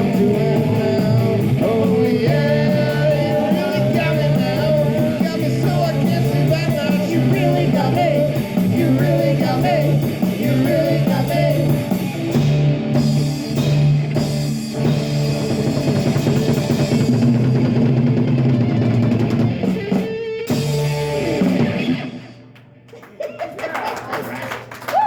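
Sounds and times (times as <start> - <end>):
live rock band playing: 0.0 - 22.9
crowd clapping and cheering: 22.2 - 25.0.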